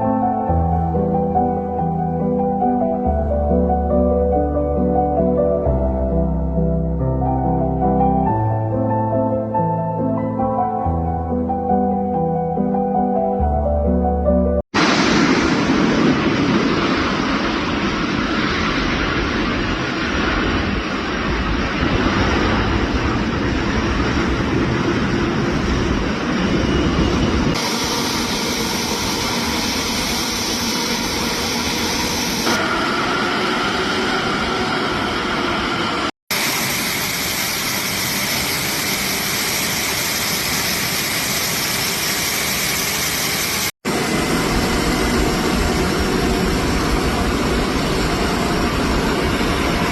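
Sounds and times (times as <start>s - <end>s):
propeller aircraft engine drone: 14.8s - 49.9s.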